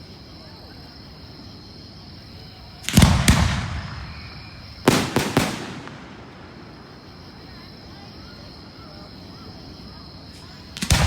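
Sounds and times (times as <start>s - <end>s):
fireworks booms and bangs: 2.8s - 7.5s, 10.3s - 11.0s.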